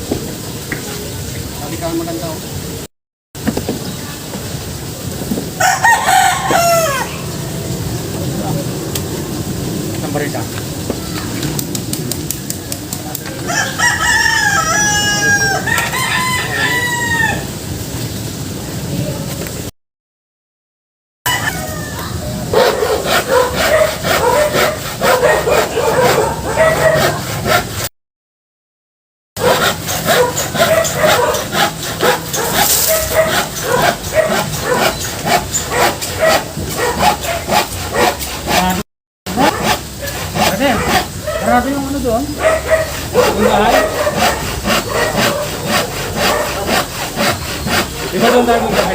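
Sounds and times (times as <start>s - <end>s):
rooster crowing: 5.6s - 7.3s, 13.3s - 17.6s, 21.3s - 27.1s
dogs barking and yipping: 21.3s - 27.8s, 29.4s - 48.9s.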